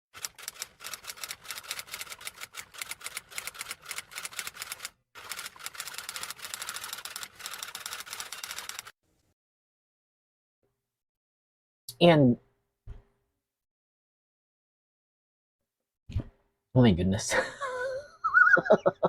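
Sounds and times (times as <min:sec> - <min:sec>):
rapid keyboard typing: 0:00.2 - 0:08.9.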